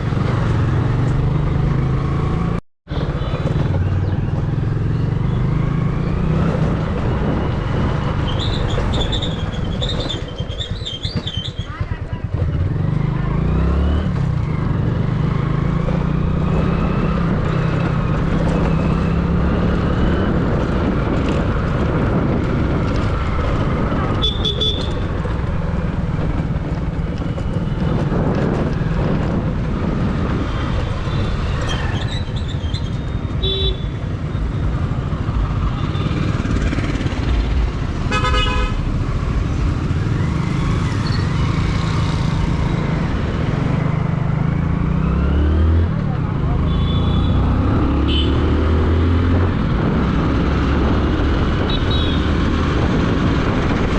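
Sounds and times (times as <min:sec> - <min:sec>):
road traffic noise: 0:00.0 - 0:53.9
vehicle horn honking: 0:24.2 - 0:25.0, 0:33.4 - 0:34.0, 0:38.1 - 0:38.8, 0:46.7 - 0:47.4, 0:48.0 - 0:48.5, 0:51.7 - 0:52.3.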